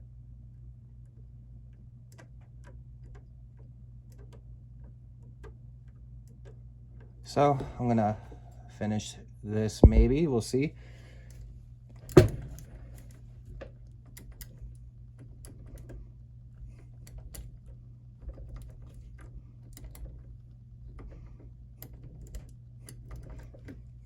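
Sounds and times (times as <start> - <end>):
low hum: 9.6 - 10.6.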